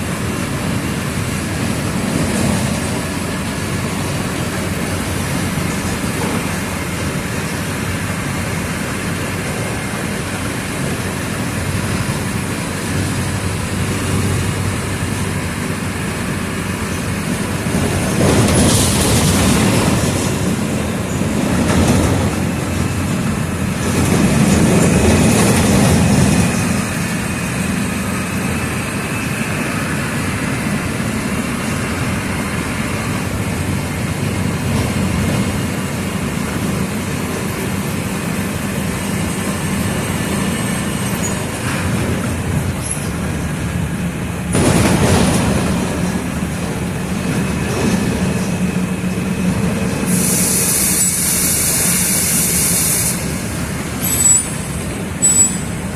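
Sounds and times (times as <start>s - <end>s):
bus diesel engine: 0.0s - 55.9s
air brakes hissing: 50.0s - 55.8s.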